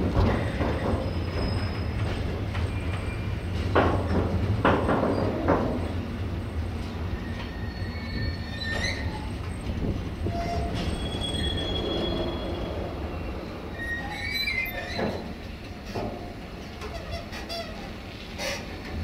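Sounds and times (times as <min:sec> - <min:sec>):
high-pitched metallic squeals: 0:07.2 - 0:09.3, 0:10.3 - 0:15.3.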